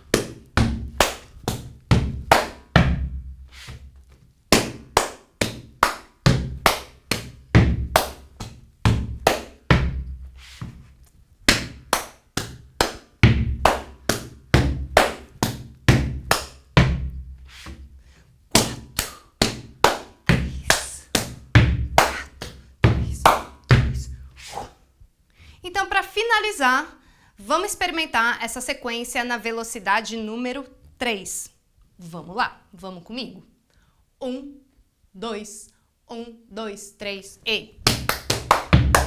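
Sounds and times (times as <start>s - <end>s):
hand claps: 0.0s - 2.8s, 4.5s - 10.7s, 11.5s - 16.7s, 18.5s - 23.8s, 37.9s - 39.0s
hands slapping rubber boots: 0.0s - 17.9s, 18.5s - 24.1s, 37.8s - 39.0s.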